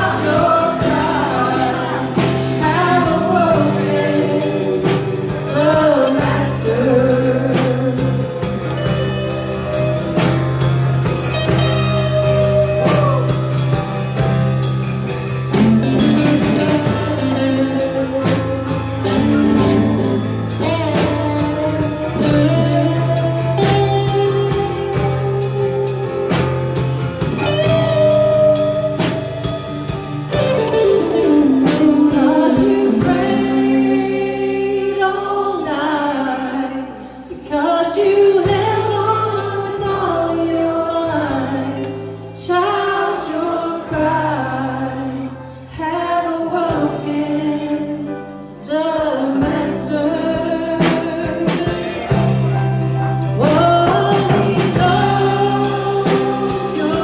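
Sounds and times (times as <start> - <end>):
gospel singing: 0.0 - 26.0, 30.4 - 57.0
steady drum beat: 0.0 - 34.0, 49.4 - 57.0
guitar: 0.0 - 57.0.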